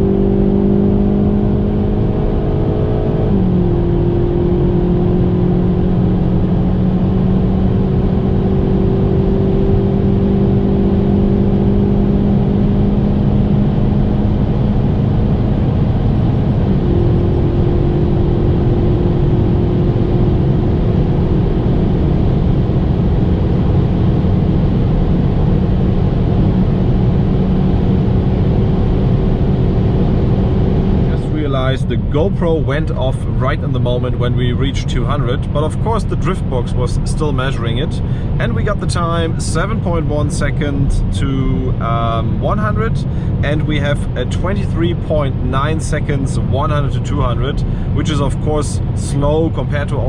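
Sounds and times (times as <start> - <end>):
car engine at full throttle: 0.0 - 50.0
wind and road noise: 0.0 - 50.0.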